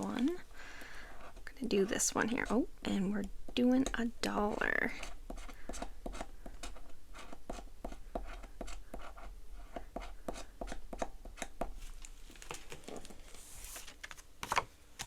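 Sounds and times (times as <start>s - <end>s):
pen scratching on paper: 3.6s - 11.5s
paper rustle: 11.8s - 14.6s.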